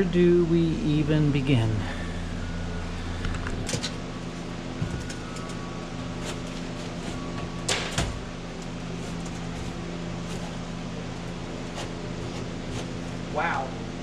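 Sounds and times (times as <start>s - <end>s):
low hum: 0.0s - 14.0s
rustling scrape: 8.9s - 13.3s.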